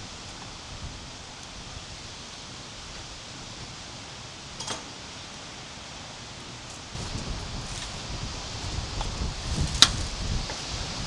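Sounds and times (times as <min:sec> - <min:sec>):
wind noise on microphone: 0:00.0 - 0:02.2, 0:06.9 - 0:11.0
rustling: 0:06.3 - 0:11.0.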